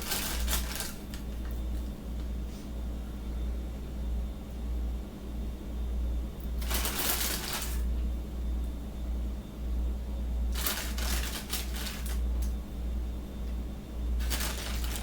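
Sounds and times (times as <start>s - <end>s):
rustling food wrappers: 0.0s - 1.3s, 6.6s - 7.8s, 10.5s - 12.2s, 14.2s - 15.0s
low electrical hum: 0.0s - 15.0s.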